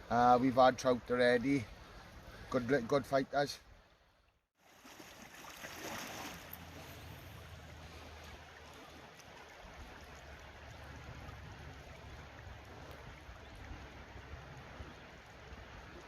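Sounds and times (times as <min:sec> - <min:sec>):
river water rushing: 0:04.7 - 0:16.0.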